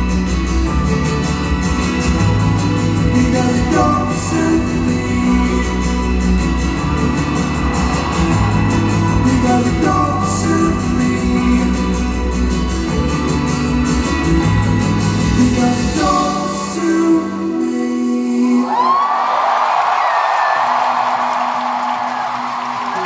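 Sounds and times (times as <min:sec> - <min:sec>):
bass guitar: 0:00.0 - 0:17.3
electric guitar: 0:00.0 - 0:17.7
person singing: 0:02.6 - 0:13.1, 0:15.1 - 0:19.1.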